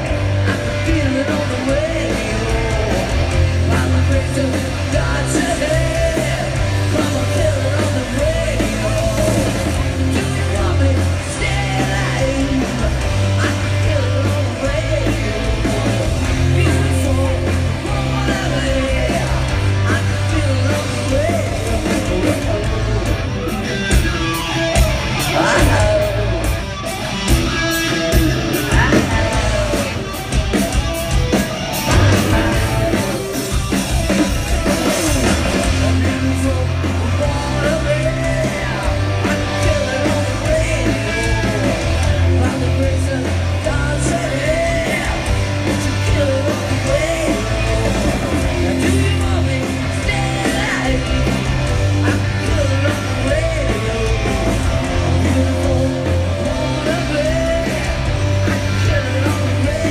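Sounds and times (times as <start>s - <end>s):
live rock band playing: 0.0s - 59.9s
person singing: 24.8s - 26.6s, 34.7s - 45.3s, 52.0s - 59.9s.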